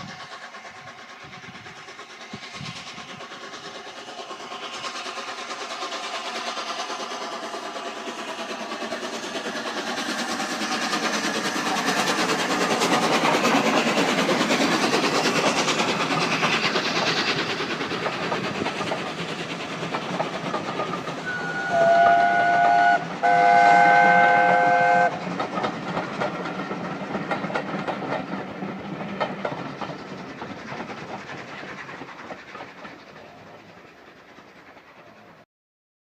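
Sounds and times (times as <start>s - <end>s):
steam train passing: 0.0s - 35.4s
steam whistle blasts: 21.2s - 25.2s.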